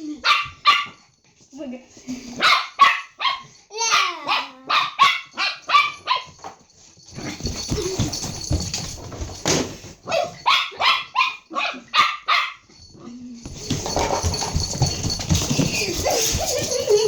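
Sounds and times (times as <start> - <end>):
dog barking: 0.2 - 1.0, 2.4 - 6.3, 10.1 - 12.7
scuffling noise: 13.5 - 17.0.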